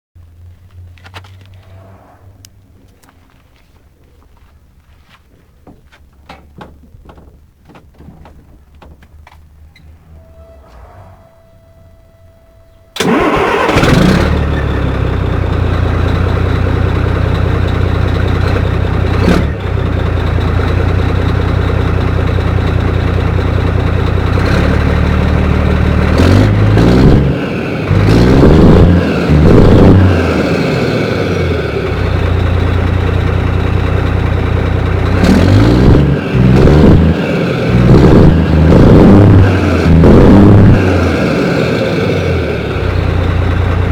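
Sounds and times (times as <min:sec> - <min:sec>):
diesel truck engine starting: 0:09.3 - 0:43.9
diesel engine idling: 0:11.4 - 0:43.9
engine revving: 0:13.0 - 0:43.9.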